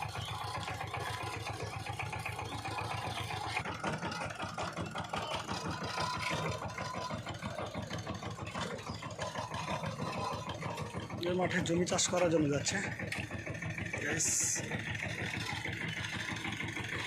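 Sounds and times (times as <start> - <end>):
diesel engine chugging: 0.0 - 17.0.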